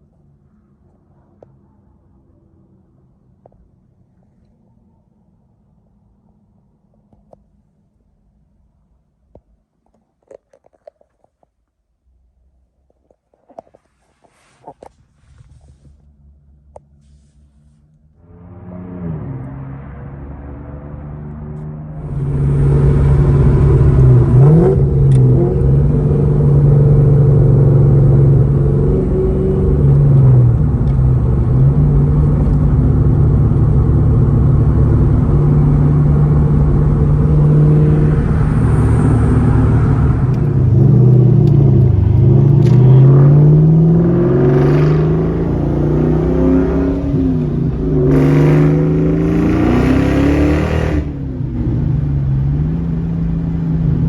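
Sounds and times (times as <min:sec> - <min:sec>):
car engine revving: 0:16.3 - 0:54.0.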